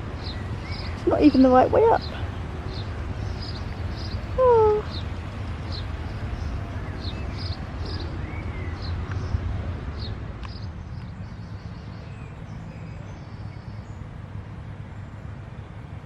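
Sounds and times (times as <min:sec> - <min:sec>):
low outdoor rumble: 0:00.0 - 0:16.0
small birds chirping: 0:00.1 - 0:09.4.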